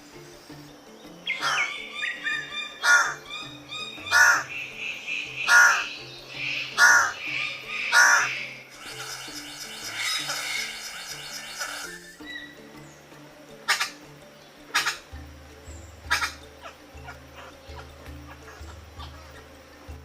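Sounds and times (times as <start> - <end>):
soft background music: 0.0 - 20.0
bird giving harsh calls: 1.2 - 12.6, 13.6 - 14.0, 14.7 - 15.2, 16.0 - 19.6.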